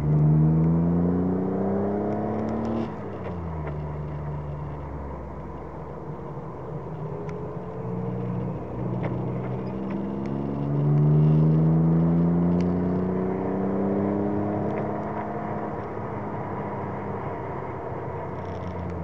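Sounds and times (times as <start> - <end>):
car engine revving from inside: 0.0 - 3.0, 8.1 - 17.0
road noise: 0.0 - 19.0.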